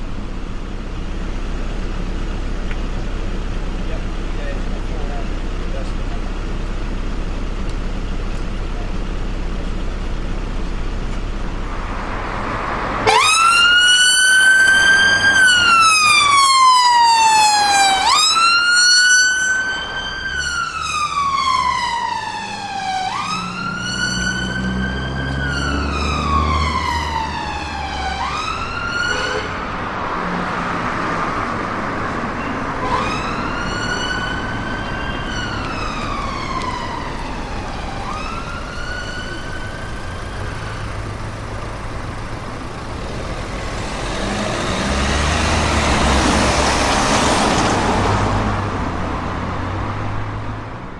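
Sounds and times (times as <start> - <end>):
traffic rumble: 0.0 - 50.9
emergency siren wailing: 11.9 - 50.8.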